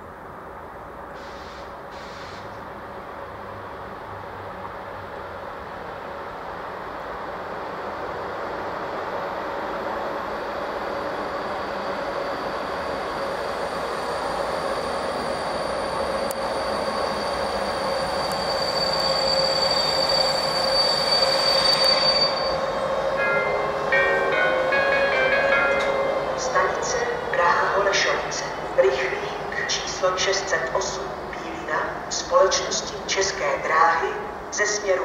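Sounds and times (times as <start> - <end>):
train rumble: 0.0 - 35.0
high-pitched wheel squeal: 13.7 - 23.0.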